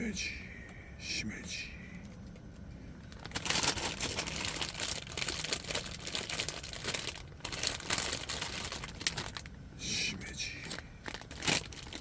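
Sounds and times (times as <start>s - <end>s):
mushrooms crinkling and tearing: 2.4s - 9.6s, 10.6s - 12.0s.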